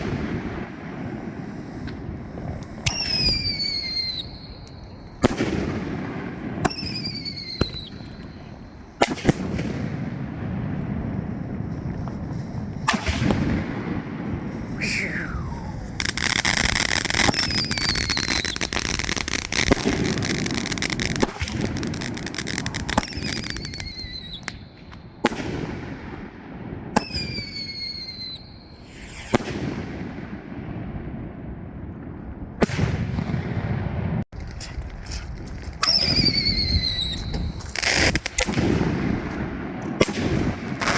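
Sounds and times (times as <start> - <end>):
falling firework whistles: 0.0 - 9.9, 11.5 - 25.7, 27.0 - 30.4, 34.5 - 39.0
firework crackling: 0.0 - 26.3, 27.0 - 31.3, 32.6 - 40.9
firework bangs: 0.0 - 40.9.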